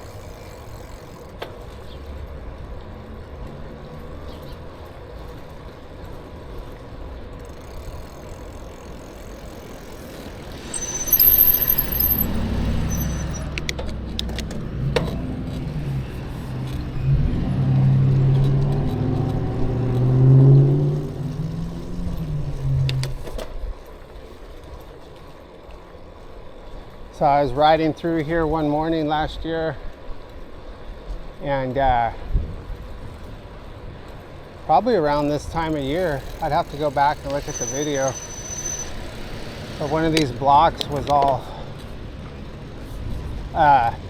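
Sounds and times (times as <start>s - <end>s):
road noise: 0.0s - 44.0s
traffic hum: 0.0s - 44.0s
vehicle engine revving: 10.4s - 23.1s
brief high squeal: 10.6s - 13.6s, 37.3s - 39.1s.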